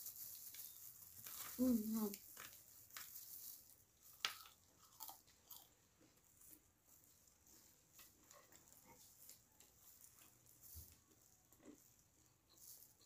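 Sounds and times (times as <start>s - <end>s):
soft chewing and lip smacks: 4.0s - 13.0s.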